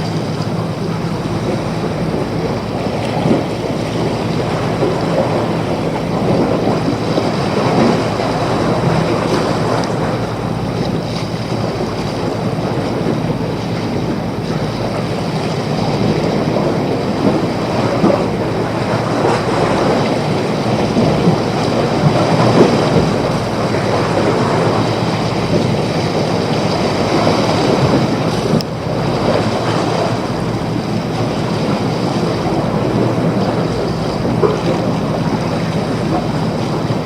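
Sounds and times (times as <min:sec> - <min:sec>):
rushing water: 0:00.0 - 0:37.0.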